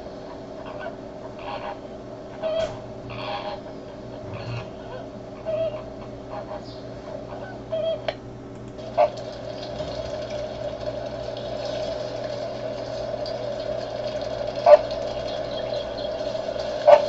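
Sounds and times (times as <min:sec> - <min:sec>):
flamingo honks: 0:00.6 - 0:08.1, 0:08.8 - 0:12.0, 0:12.7 - 0:17.0
flock babbling: 0:13.2 - 0:17.0.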